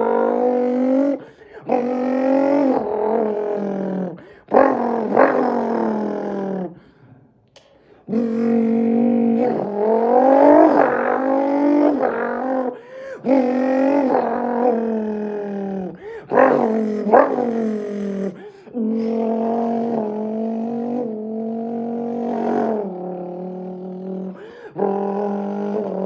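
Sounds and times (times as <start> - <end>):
man imitating engine revs: 8.1 - 26.0.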